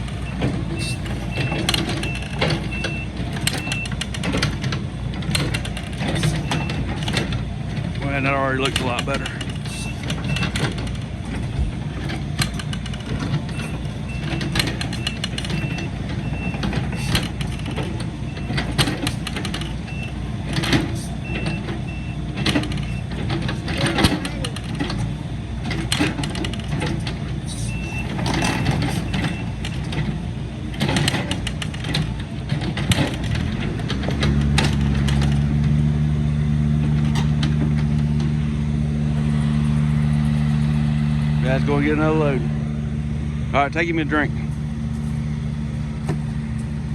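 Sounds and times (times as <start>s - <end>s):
sharp clanks and knocks: 0.0s - 40.6s, 43.5s - 46.9s
heavy diesel engine working: 0.0s - 46.9s
backup alarm beeping: 0.2s - 4.0s, 27.5s - 28.2s.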